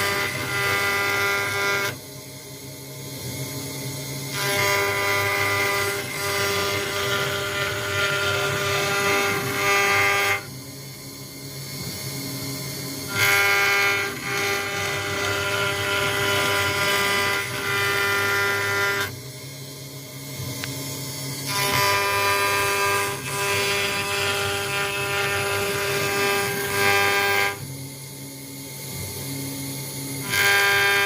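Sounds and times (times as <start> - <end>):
bit cutting acrylic: 0.0 - 2.0, 4.3 - 10.5, 13.0 - 19.1, 21.4 - 27.7, 30.2 - 31.0
router spindle whine: 0.0 - 31.0.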